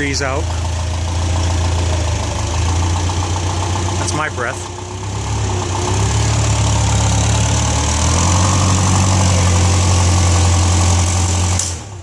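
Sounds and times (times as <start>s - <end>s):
forklift engine running: 0.0s - 12.0s.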